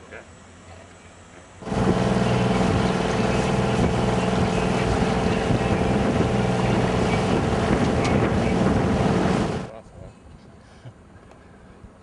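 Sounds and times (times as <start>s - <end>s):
wind: 0.0s - 12.0s
boat engine running: 1.6s - 9.7s
water noise: 1.6s - 9.7s.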